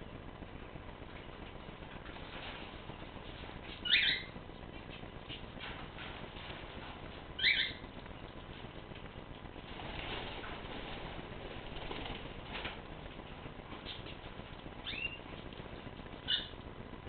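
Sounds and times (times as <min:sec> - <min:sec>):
bird loud high calls: 0:03.8 - 0:04.3, 0:07.4 - 0:07.8, 0:16.2 - 0:16.6
faint bird chirps: 0:03.8 - 0:04.3, 0:07.4 - 0:07.8, 0:14.8 - 0:15.3, 0:16.2 - 0:16.6.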